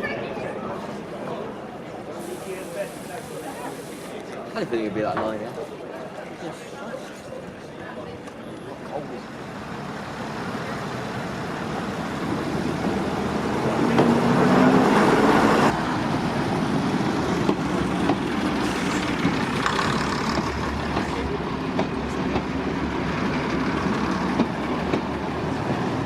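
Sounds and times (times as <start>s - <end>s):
train rumbling: 8.9s - 26.0s.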